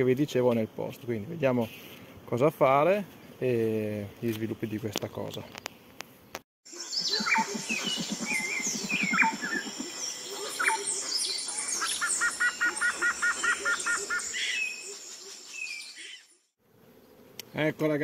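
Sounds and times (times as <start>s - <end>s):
fast repeated bird trill: 6.7s - 15.0s
birds singing and chirping: 6.7s - 16.4s.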